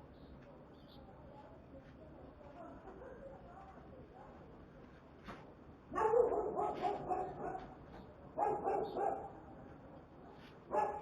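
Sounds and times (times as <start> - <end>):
dog barking: 6.0 - 7.7, 8.4 - 9.4, 10.7 - 11.0.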